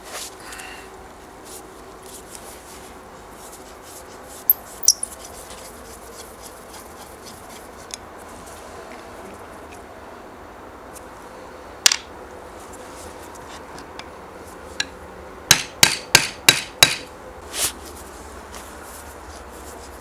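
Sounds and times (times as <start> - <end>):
hammer striking workpiece: 15.5 - 17.1.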